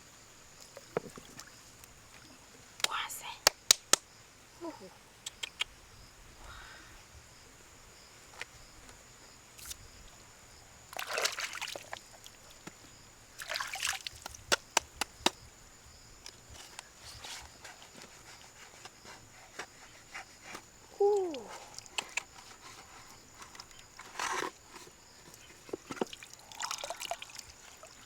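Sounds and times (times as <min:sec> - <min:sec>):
water splashing and sloshing: 0:00.5 - 0:02.5, 0:10.8 - 0:14.8, 0:21.3 - 0:28.0
sharp clicks: 0:05.2 - 0:05.7.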